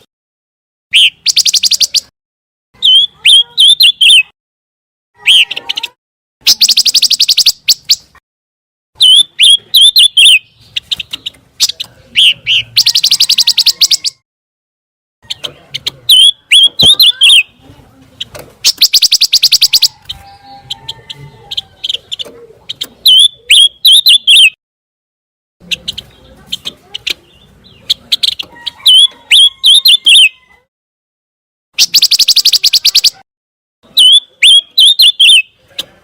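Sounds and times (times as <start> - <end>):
sharp downward bird chirps: 0.9 - 2.1, 2.8 - 4.4, 5.2 - 8.2, 9.0 - 14.2, 16.1 - 17.6, 18.6 - 20.6, 22.7 - 24.6, 27.2 - 30.4, 31.8 - 33.2, 33.9 - 35.6
high buzzy bird trills: 18.6 - 24.6, 31.8 - 33.2.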